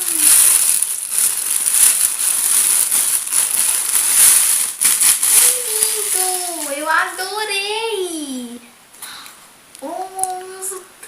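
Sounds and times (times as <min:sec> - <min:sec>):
wrapping paper tearing and crinkling: 0:00.0 - 0:07.2.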